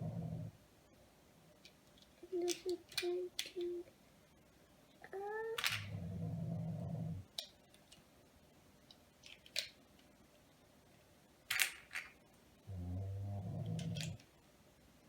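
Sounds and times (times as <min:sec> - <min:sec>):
low steady hum: 0:00.0 - 0:15.0
plastic bricks clicking together: 0:01.9 - 0:03.7, 0:05.6 - 0:06.0, 0:09.2 - 0:09.8, 0:11.5 - 0:12.2, 0:13.6 - 0:14.3.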